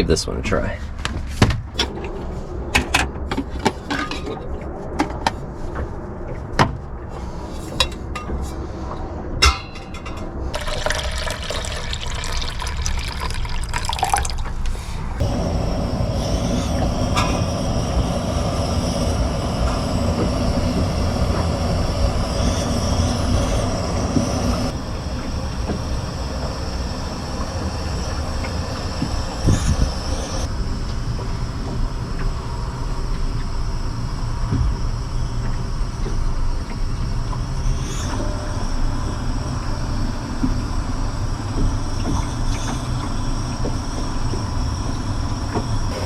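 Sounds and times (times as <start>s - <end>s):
water poured into a pot: 10.5s - 14.6s
camp stove burner hissing: 10.6s - 14.4s, 15.2s - 46.0s.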